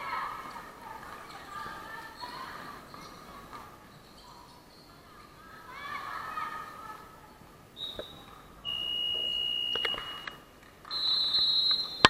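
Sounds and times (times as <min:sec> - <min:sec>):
voices shouting: 0:00.0 - 0:03.2, 0:05.4 - 0:08.9
referee's whistle blasts: 0:07.8 - 0:12.0.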